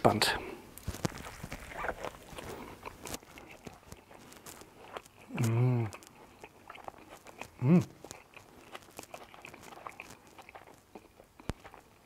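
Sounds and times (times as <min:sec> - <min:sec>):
man chewing burger: 0:00.6 - 0:12.0
man humming with full mouth: 0:05.3 - 0:06.0, 0:07.6 - 0:08.0.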